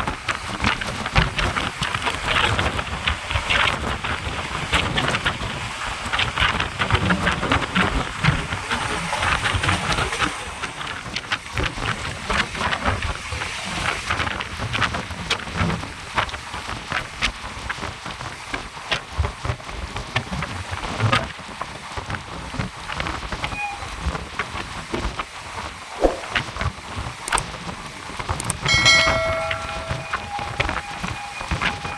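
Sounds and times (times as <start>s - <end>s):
rush of air: 25.9s - 26.6s
sharp clicks and rattles: 27.2s - 27.5s, 28.2s - 28.7s
low train rumble: 27.9s - 31.9s.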